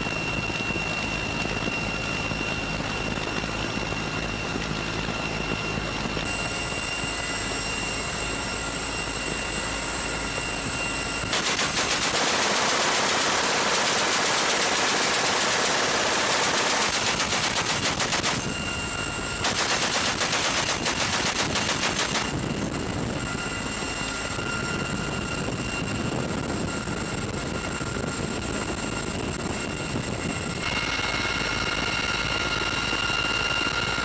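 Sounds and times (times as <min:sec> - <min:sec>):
helicopter running: 0:00.0 - 0:34.0
machine gun firing: 0:11.3 - 0:18.5, 0:19.4 - 0:22.4.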